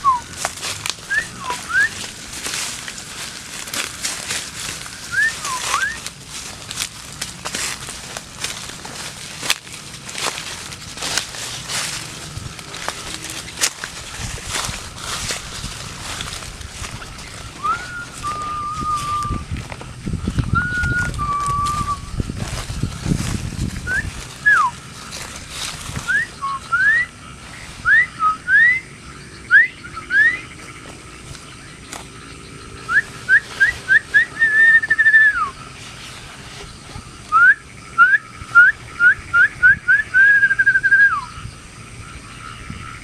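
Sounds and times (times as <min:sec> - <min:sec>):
person whistling: 0:00.0 - 0:00.3, 0:01.1 - 0:02.0, 0:05.1 - 0:06.0, 0:17.6 - 0:19.5, 0:20.5 - 0:22.2, 0:23.9 - 0:24.7, 0:26.1 - 0:27.1, 0:27.8 - 0:28.8, 0:29.5 - 0:30.4, 0:32.9 - 0:35.5, 0:37.3 - 0:41.3.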